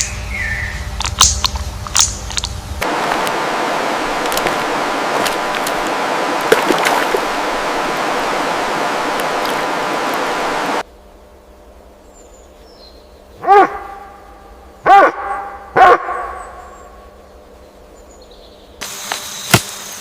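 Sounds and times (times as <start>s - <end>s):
loud bark-like animal call: 13.4s - 16.7s.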